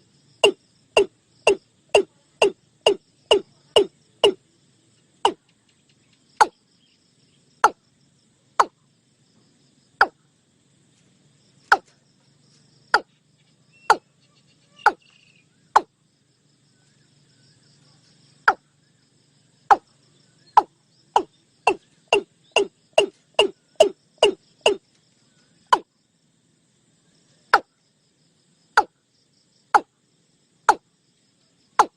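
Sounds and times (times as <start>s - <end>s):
bird calling sharp notes: 0.4s - 4.4s, 13.8s - 15.9s, 21.2s - 24.8s.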